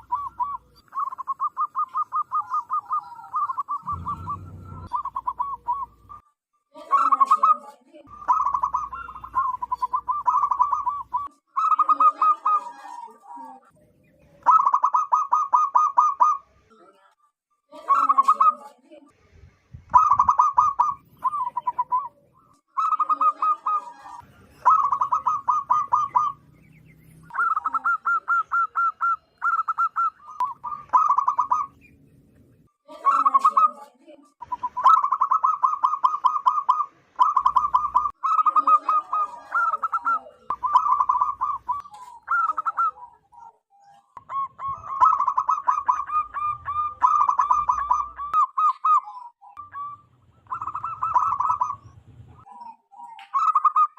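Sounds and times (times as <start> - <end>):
dove cooing: 0.0 - 6.2, 6.9 - 16.5, 17.8 - 18.6, 19.9 - 31.9, 33.0 - 53.9.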